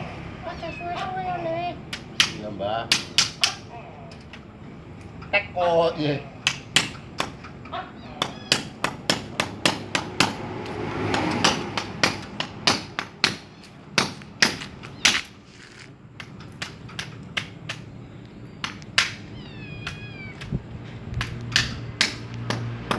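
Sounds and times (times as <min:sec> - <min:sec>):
hammer blows: 0:08.2 - 0:15.4.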